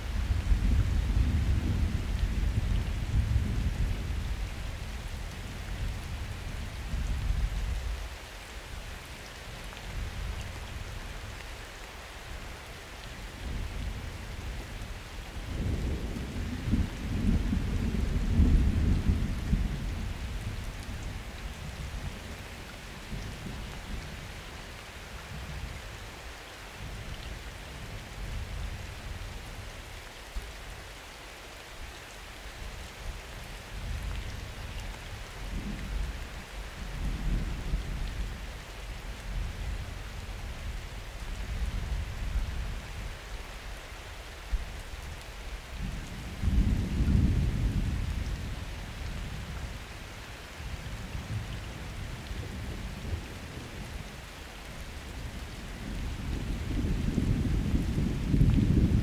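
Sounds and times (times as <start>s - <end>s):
steady rain: 0.0s - 59.0s
thunder rumbling: 55.8s - 59.0s.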